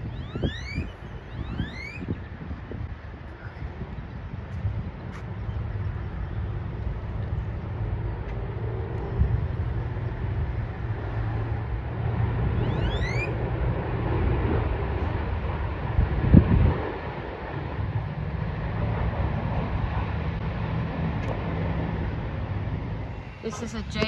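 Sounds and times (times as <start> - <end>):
short rising whistle: 0.0 - 2.2, 12.5 - 13.4
jet engine rumble: 0.0 - 24.0
wind buffeting microphone: 0.0 - 24.0.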